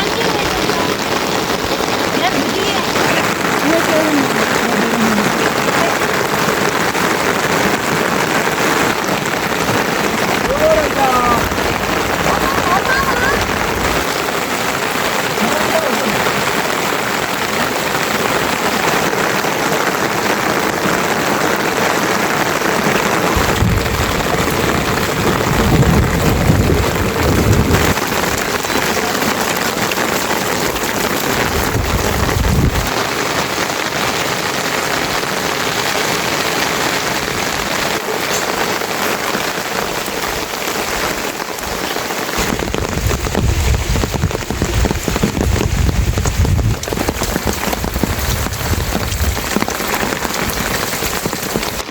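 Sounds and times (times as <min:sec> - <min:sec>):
low rumbles: 0:00.0 - 0:16.6, 0:22.5 - 0:33.0, 0:42.4 - 0:51.9
heavy rain pattering: 0:00.0 - 0:51.9.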